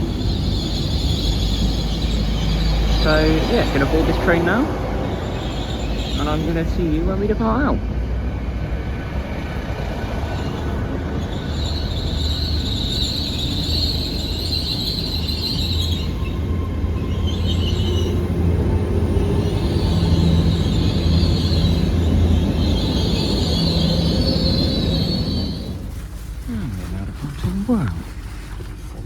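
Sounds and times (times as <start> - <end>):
high-pitched squeal: 0.0 - 6.8, 10.2 - 26.0
train rumbling: 0.0 - 29.0.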